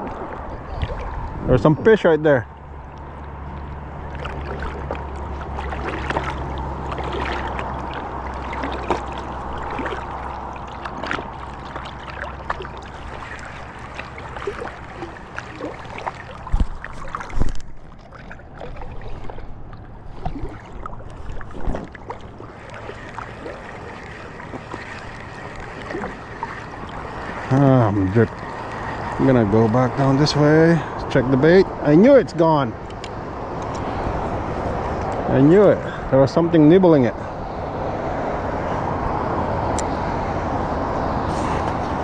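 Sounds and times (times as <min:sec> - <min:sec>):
low steady hum: 0:00.0 - 0:31.9
water lapping and splashing: 0:00.0 - 0:42.0
knocks and thumps on boat: 0:10.8 - 0:27.6.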